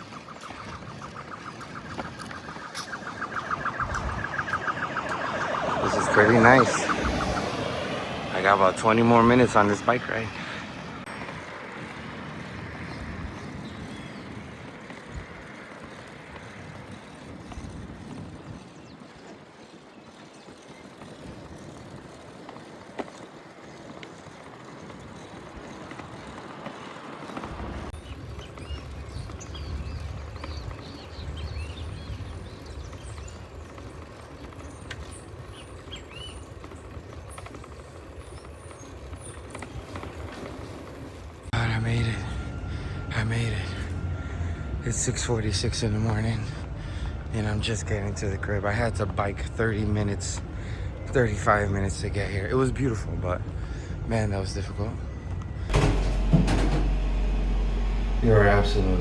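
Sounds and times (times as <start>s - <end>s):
gusty wind rumble: 0.0s - 19.8s
street noise: 0.0s - 59.0s.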